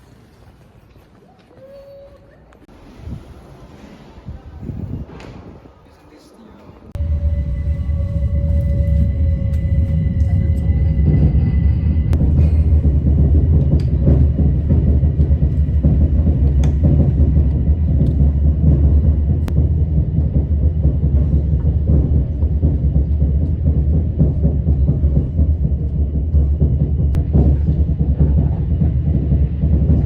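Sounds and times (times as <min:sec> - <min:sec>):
train rumbling: 0:01.6 - 0:30.0.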